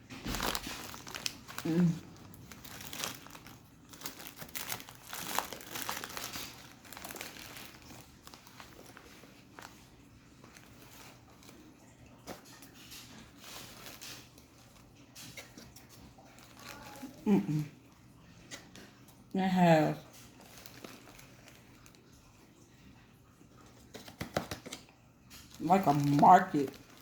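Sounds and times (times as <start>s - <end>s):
plastic bag crinkling: 0.0s - 17.5s, 20.0s - 22.4s, 25.3s - 27.0s.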